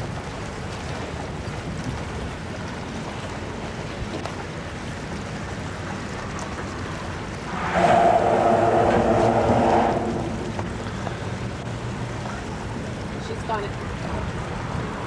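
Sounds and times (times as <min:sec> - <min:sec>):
wind: 0:00.0 - 0:15.0
water noise: 0:00.6 - 0:15.0.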